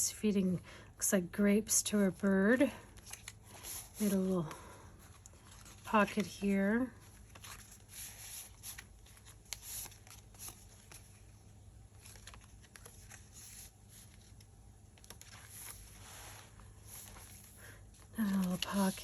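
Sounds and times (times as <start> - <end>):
paper pages rustling and turning: 2.8 - 19.0.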